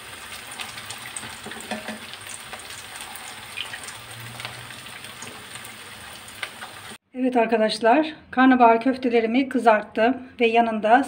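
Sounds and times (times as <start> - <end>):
patties sizzling in hot oil: 0.0 - 7.0.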